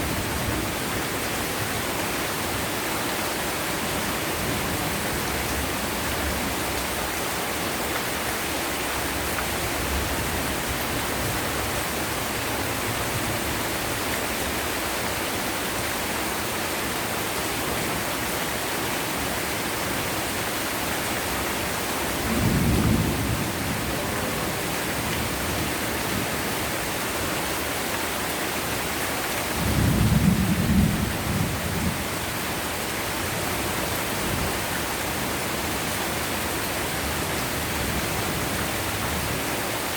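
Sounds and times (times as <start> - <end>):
heavy rain hissing: 16.4 - 39.9
low rumbles of thunder: 22.2 - 25.3, 29.6 - 32.1.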